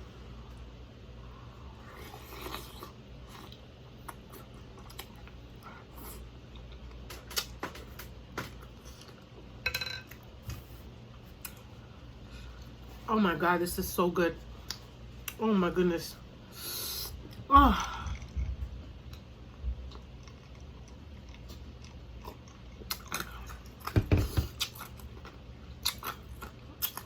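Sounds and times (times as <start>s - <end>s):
person chewing: 1.7s - 8.1s, 17.1s - 27.0s.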